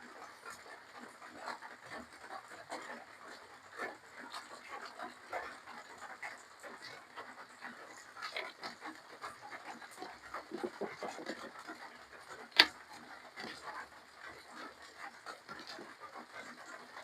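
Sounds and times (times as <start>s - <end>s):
person chewing and slurping: 10.4s - 11.5s.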